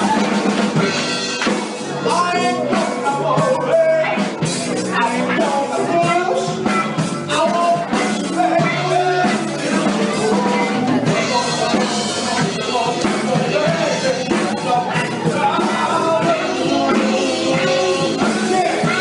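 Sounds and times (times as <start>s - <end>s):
person singing: 0.0s - 19.0s
soul band playing live: 0.0s - 19.0s.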